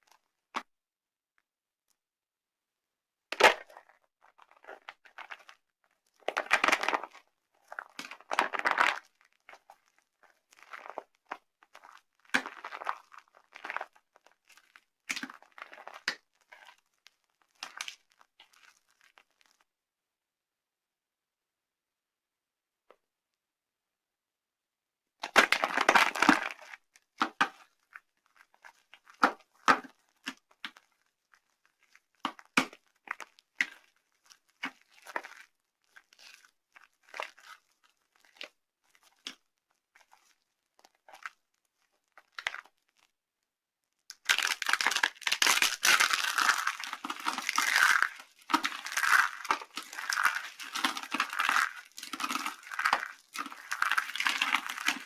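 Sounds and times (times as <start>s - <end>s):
dry soap crunching and crumbling: 6.2s - 19.6s, 25.2s - 43.1s, 44.1s - 55.0s.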